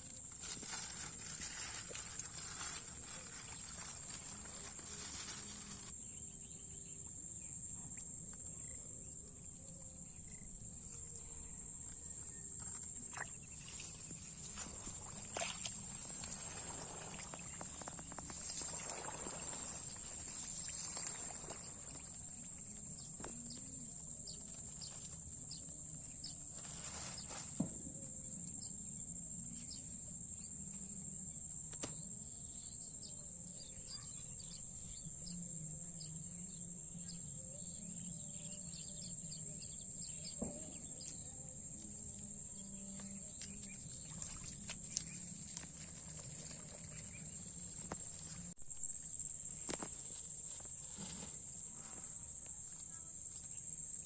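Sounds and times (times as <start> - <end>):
rustling: 0.0 - 6.0, 13.6 - 23.7, 26.4 - 27.6
insects droning: 0.0 - 54.0.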